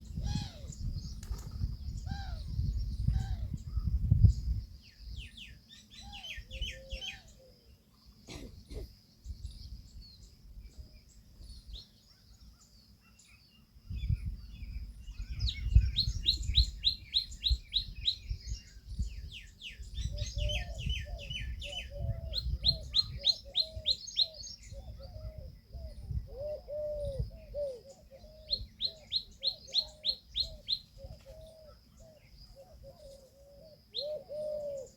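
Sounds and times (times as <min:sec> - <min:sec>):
birds calling: 0:14.8 - 0:34.9.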